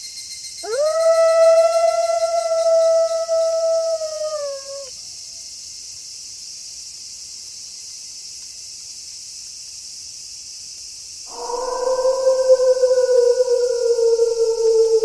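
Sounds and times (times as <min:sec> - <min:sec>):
crickets chirring: 0:00.0 - 0:15.0
wolf howling: 0:00.6 - 0:04.9, 0:11.3 - 0:15.0.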